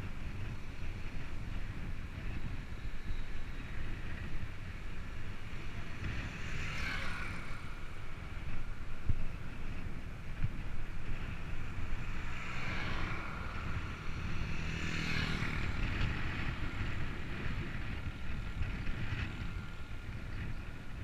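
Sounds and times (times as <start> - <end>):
road noise: 0.0 - 21.0
wind rumbling on microphone: 0.0 - 21.0
vehicle passing: 5.4 - 8.8, 11.1 - 21.0.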